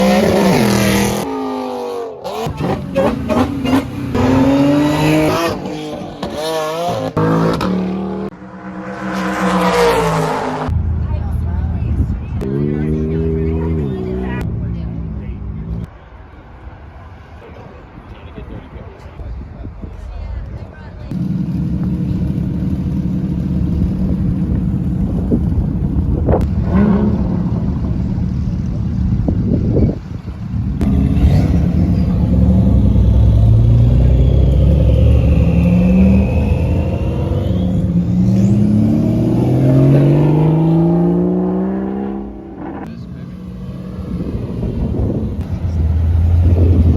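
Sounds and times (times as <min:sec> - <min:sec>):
car engine revving: 0:00.0 - 0:15.9, 0:21.1 - 0:46.9
wind on microphone: 0:43.7 - 0:46.9.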